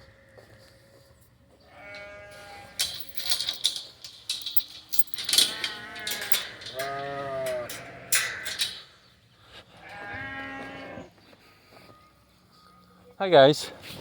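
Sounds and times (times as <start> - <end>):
sheep bleating: 1.7 - 2.8
rustling: 2.8 - 7.0.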